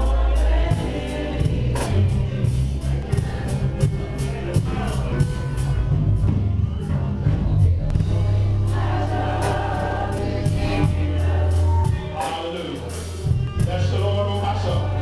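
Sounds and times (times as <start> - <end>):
gospel choir singing: 0.0 - 15.0.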